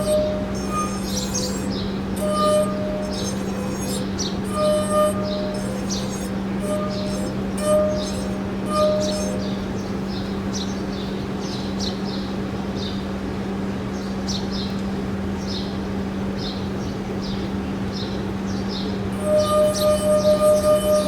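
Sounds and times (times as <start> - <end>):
steady low hum: 0.0 - 13.4, 14.9 - 21.0.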